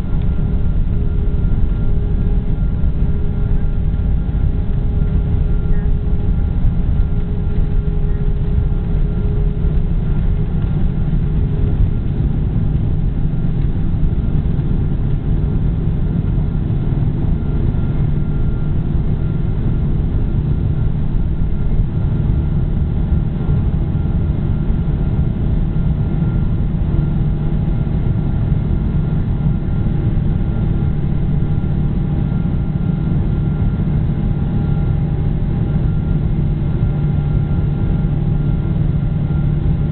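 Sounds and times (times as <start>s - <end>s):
faint steady whine: 0.0s - 39.9s
jet engine cabin rumble: 0.0s - 39.9s.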